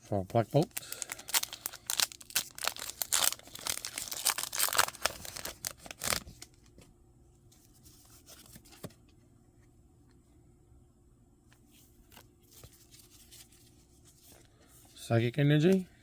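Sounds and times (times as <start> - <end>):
foil wrapper tearing and crinkling: 0.8 - 6.5.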